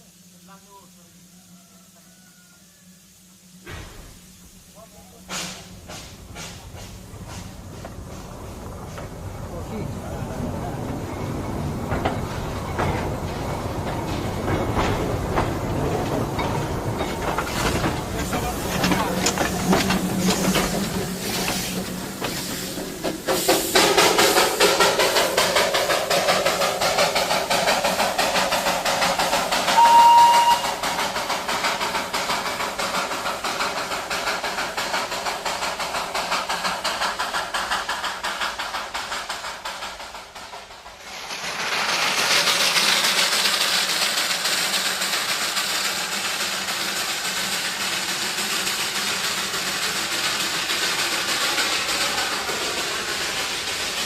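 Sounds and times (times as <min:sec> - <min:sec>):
train hissing: 0:00.0 - 0:54.0
train whistle blast: 0:29.7 - 0:31.0.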